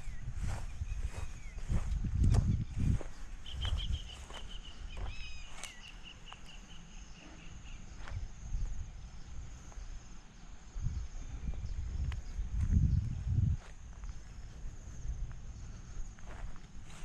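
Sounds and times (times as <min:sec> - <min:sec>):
footsteps on grass: 0:00.0 - 0:06.5, 0:12.5 - 0:15.4, 0:16.1 - 0:17.0
bird calling in pulsed notes: 0:00.0 - 0:07.8
high insect drone: 0:00.0 - 0:17.0.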